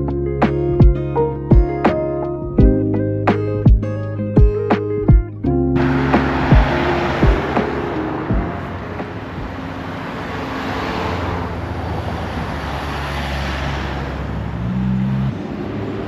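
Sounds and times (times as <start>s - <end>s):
low engine hum: 5.2s - 16.0s
vehicle passing by: 5.8s - 16.0s.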